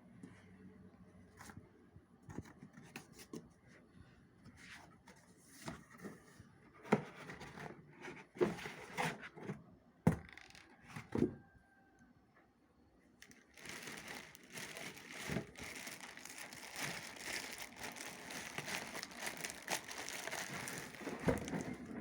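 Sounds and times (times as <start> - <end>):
packaging rustling and scraping: 13.2 - 22.0.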